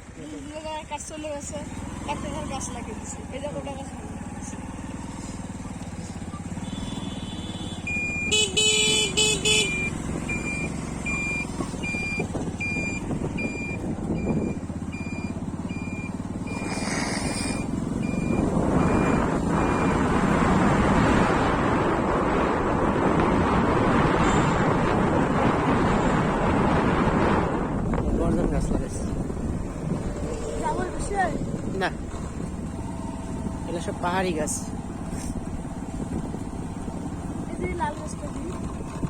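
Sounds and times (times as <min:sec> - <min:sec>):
traffic rumble: 0:00.0 - 0:39.0
vehicle horn blasts: 0:06.6 - 0:10.0
thin high beeps: 0:09.7 - 0:20.0.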